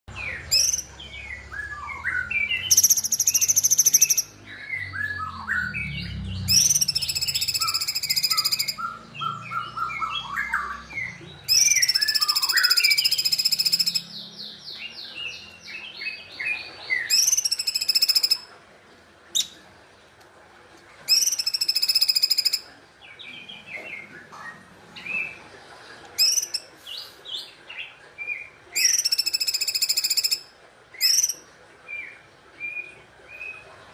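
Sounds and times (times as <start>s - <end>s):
bird chirping: 0.1s - 18.6s, 19.3s - 19.7s, 21.1s - 25.5s, 26.2s - 33.8s
songbird trilling: 0.4s - 5.3s, 6.4s - 14.6s, 17.0s - 18.5s, 21.1s - 22.7s, 26.2s - 26.7s, 28.8s - 30.4s, 31.0s - 31.4s.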